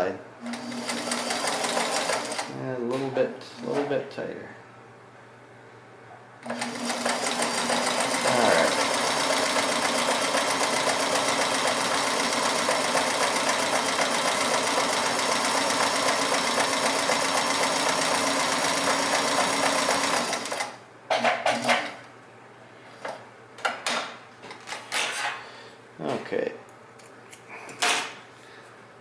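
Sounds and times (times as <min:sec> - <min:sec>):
sewing machine running: 0:00.4 - 0:02.5, 0:06.4 - 0:20.8.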